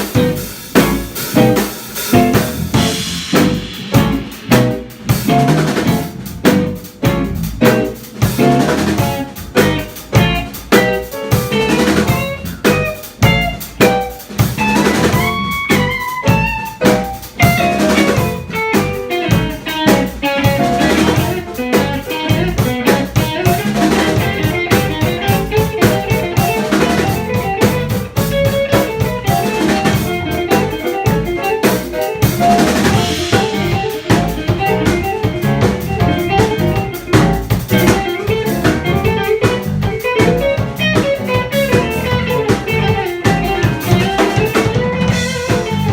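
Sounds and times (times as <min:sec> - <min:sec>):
jazz band playing: 0:00.0 - 0:45.9
snare drum rimshots: 0:00.0 - 0:45.9.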